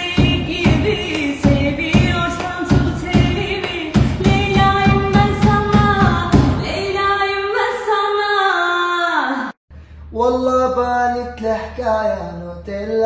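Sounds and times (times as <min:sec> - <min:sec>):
steady drum beat: 0:00.0 - 0:06.9.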